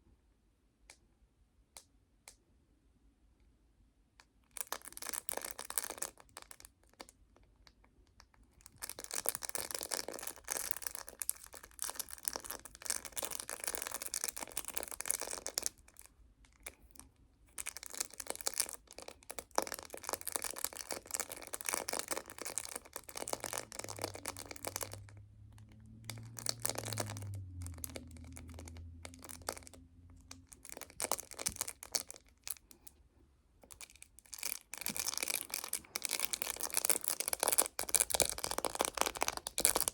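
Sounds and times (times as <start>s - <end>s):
low hum: 23.0s - 31.8s.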